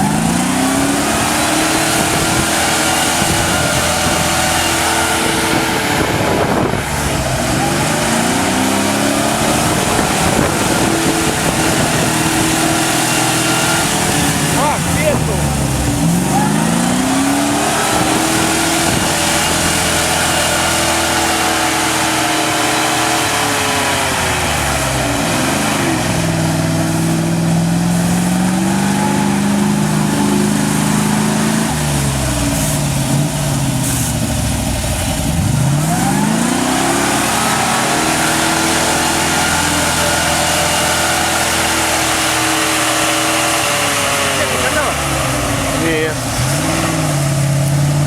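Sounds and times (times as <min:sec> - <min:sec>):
truck engine revving under load: 0:00.0 - 0:48.0.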